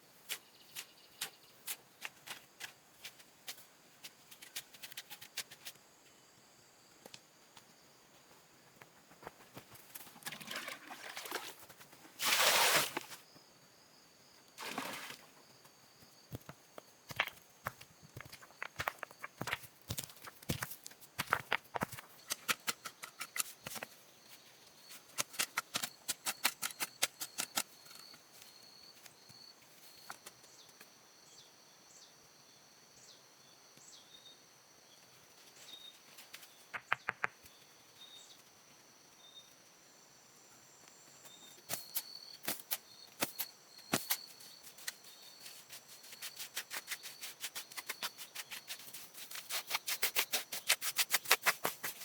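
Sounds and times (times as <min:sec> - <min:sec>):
quick sharp taps: 0:36.8 - 0:37.4.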